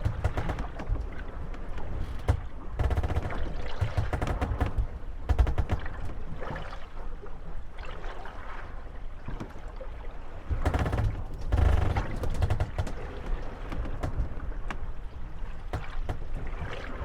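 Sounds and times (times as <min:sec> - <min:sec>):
boat hulls knocking together: 0:00.0 - 0:06.2, 0:10.5 - 0:14.9, 0:15.6 - 0:17.0
wooden boat hulls creaking: 0:00.0 - 0:07.0, 0:10.3 - 0:17.0.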